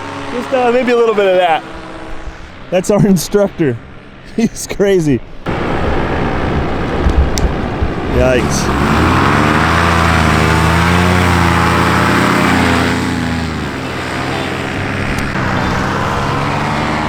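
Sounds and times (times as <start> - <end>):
paramotor engine and propeller: 0.0 - 2.7, 5.5 - 17.0.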